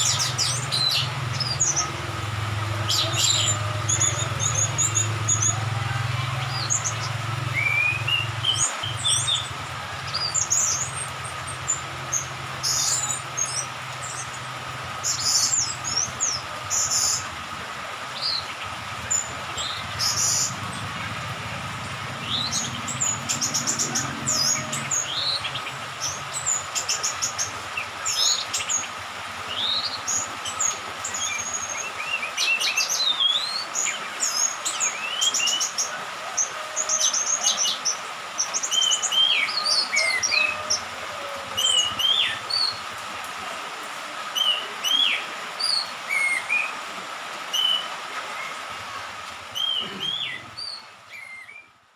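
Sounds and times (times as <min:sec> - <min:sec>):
thrush singing whistles and chirps: 0:06.6 - 0:11.0.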